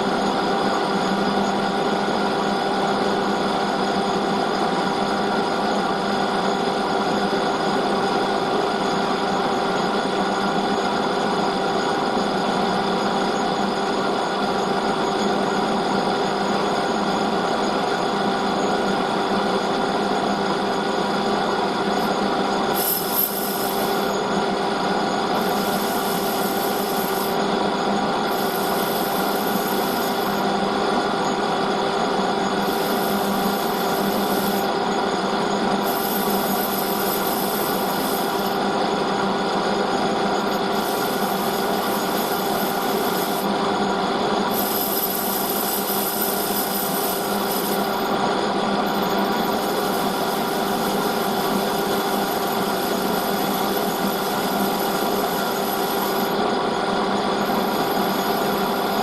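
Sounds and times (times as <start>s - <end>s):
metal lathe humming: 15.7s - 59.0s
high cutting hiss: 22.7s - 24.1s, 25.4s - 27.4s.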